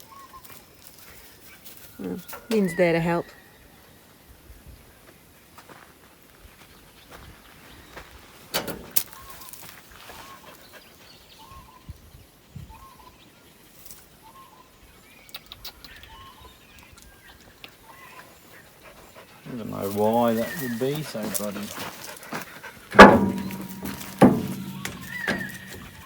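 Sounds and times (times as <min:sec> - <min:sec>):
sharp knocks: 0:23.0 - 0:26.0
bird call notes: 0:23.4 - 0:26.0
higher bird chirps: 0:23.5 - 0:26.0.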